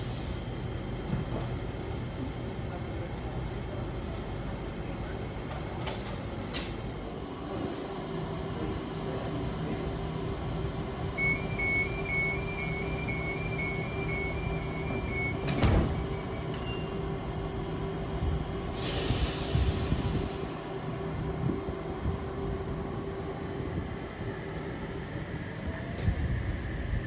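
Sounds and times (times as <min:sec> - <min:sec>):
electric train humming: 0:07.0 - 0:27.0
door warning beeps: 0:11.2 - 0:16.9
train doors shutting thump: 0:11.2 - 0:17.0
burst of hiss: 0:18.7 - 0:20.8.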